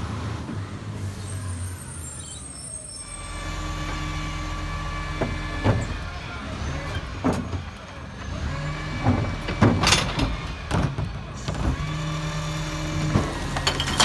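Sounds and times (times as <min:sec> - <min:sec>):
garbage truck diesel engine running: 0:00.0 - 0:14.0
bin-lifting gear clunking: 0:03.9 - 0:14.0.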